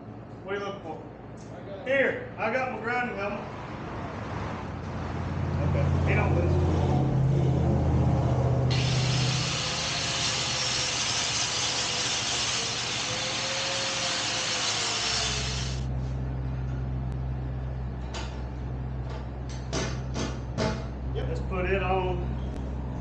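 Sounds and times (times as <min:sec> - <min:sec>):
angle grinder grinding metal: 0:08.7 - 0:15.9.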